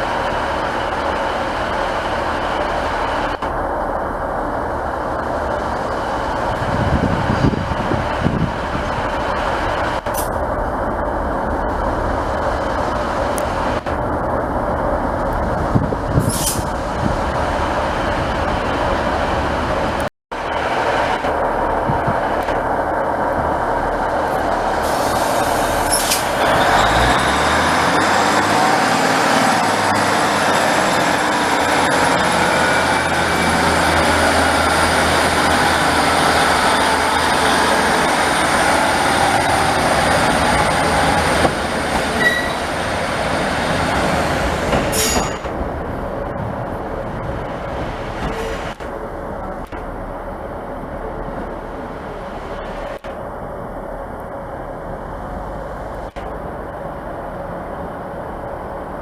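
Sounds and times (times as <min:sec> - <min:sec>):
train wheels rumbling on rail: 0:00.0 - 0:59.0
high-pitched wheel squeal: 0:42.2 - 0:42.6.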